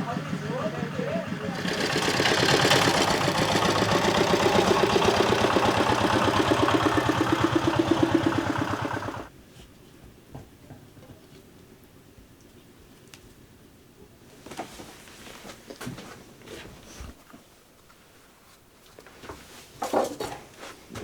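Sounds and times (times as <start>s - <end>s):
machine running with fast pulsing: 0.1s - 9.3s.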